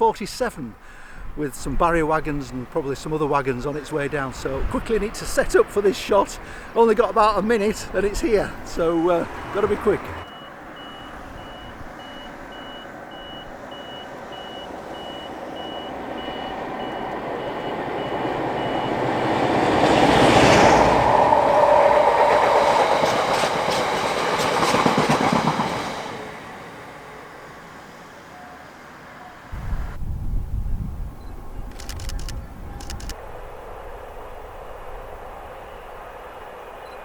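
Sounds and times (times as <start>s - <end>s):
diesel locomotive passing: 0.0s - 30.0s, 32.6s - 37.0s
wagons clattering over rails: 22.0s - 26.0s.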